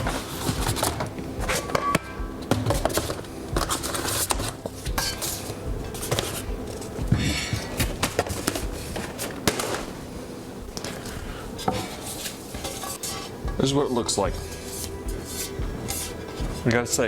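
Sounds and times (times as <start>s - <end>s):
packaging rustling: 0.0s - 13.3s
packaging clicks and knocks: 7.2s - 10.0s.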